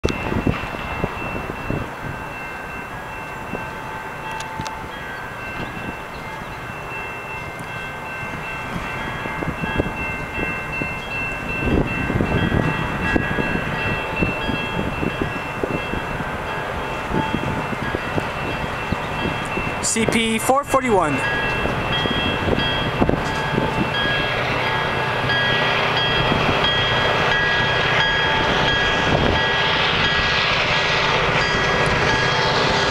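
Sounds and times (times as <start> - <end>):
diesel locomotive engines rumbling: 0.0 - 32.9.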